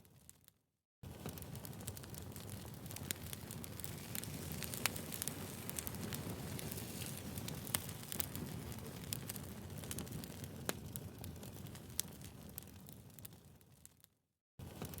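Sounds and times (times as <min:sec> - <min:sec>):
wood fire crackling: 0:00.2 - 0:14.1, 0:14.7 - 0:15.0.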